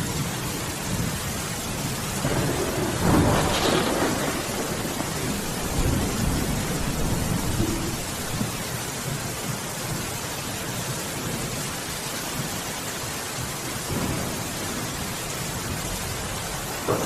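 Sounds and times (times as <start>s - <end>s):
heavy rain: 0.0s - 17.0s
thunder rolling: 1.8s - 8.6s, 13.9s - 17.0s.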